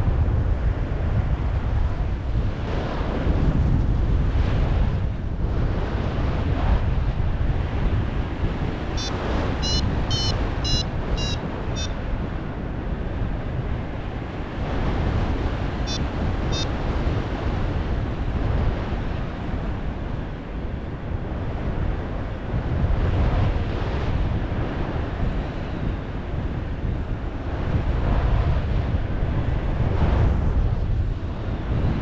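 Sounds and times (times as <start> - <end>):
wind buffeting microphone: 0.0 - 32.0
variometer short high beeps: 9.0 - 12.0, 15.9 - 16.7.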